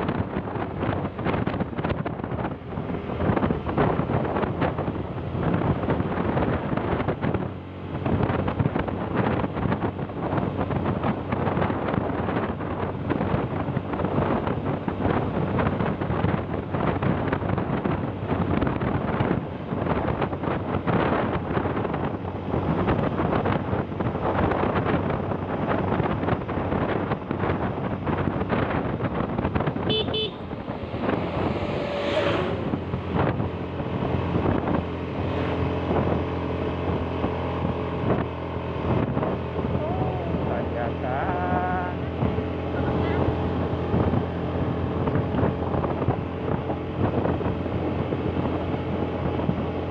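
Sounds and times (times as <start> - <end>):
vehicle engine and road noise: 0.0 - 49.9
wind buffeting microphone: 0.0 - 49.9
short horn toot: 29.8 - 30.6.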